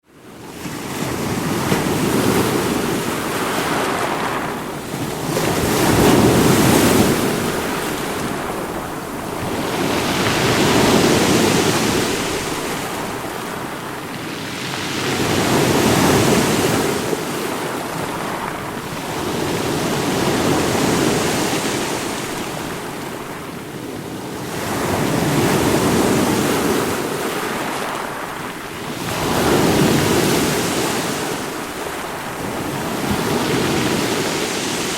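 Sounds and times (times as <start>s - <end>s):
water rushing in waves: 1.4s - 23.5s.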